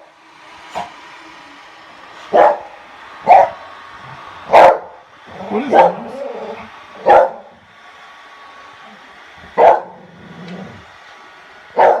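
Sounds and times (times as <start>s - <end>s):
steady low hum: 0.0s - 12.0s
dog barking: 2.3s - 2.7s, 3.3s - 3.6s, 4.5s - 5.0s, 5.6s - 6.1s, 7.0s - 7.5s, 9.6s - 10.0s, 11.8s - 12.0s.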